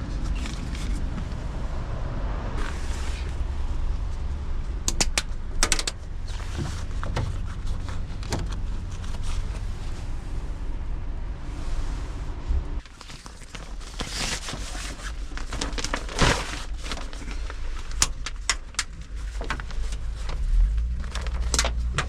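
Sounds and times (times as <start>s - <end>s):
road vehicle rumble: 0.0s - 22.0s
sharp clicks: 4.8s - 6.0s.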